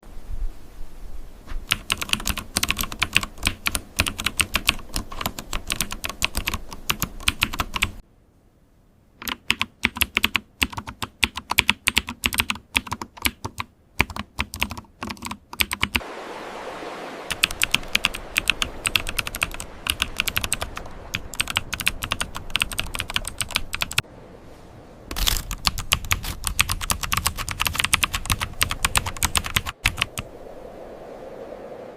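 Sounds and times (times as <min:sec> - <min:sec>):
keyboard key clicks: 0:09.2 - 0:16.0
steady hiss: 0:15.9 - 0:31.9.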